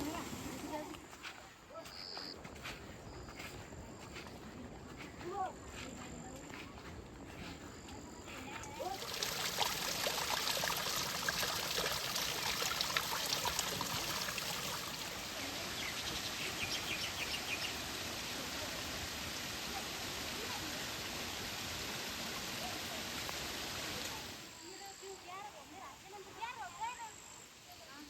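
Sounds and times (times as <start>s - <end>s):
water rushing: 0.0s - 1.1s, 8.6s - 24.6s
water splashing ticks: 8.6s - 17.9s.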